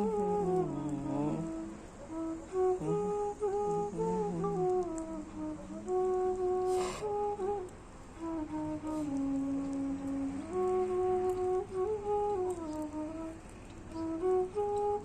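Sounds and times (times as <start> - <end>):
bamboo flute melody: 0.0 - 15.0
breathy burst of noise: 6.6 - 8.0.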